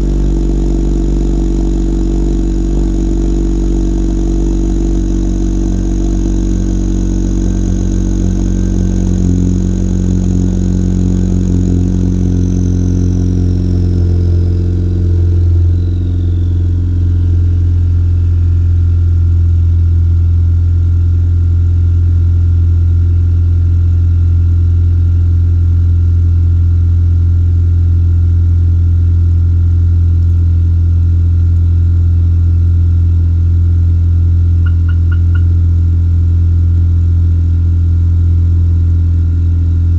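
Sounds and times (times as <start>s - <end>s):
high whine gliding down: 0.0s - 20.2s, 34.5s - 35.9s
car engine idling: 0.0s - 23.6s, 29.2s - 39.9s.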